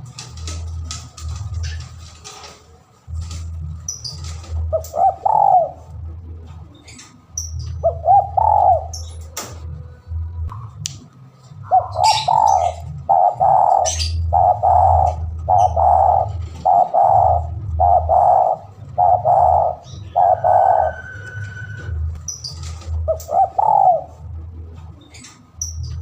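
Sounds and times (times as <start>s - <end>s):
low hum: 0.0s - 26.0s
dove cooing: 3.8s - 6.0s, 7.6s - 9.5s, 11.6s - 24.3s
faint high bird chirps: 11.7s - 22.7s.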